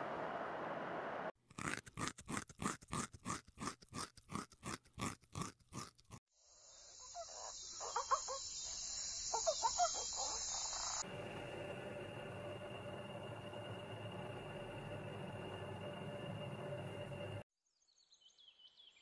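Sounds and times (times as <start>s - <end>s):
high insect hiss: 6.3s - 11.1s.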